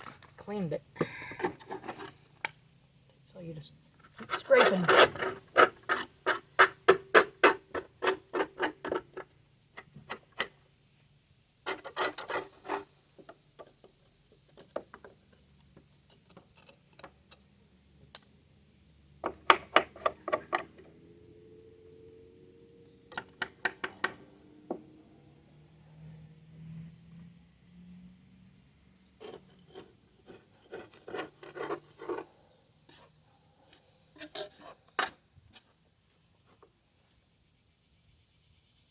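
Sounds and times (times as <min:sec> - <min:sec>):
scraper scraping grass off metal: 0:01.4 - 0:02.2, 0:04.0 - 0:09.3, 0:11.6 - 0:13.3, 0:29.2 - 0:33.2, 0:34.2 - 0:35.8.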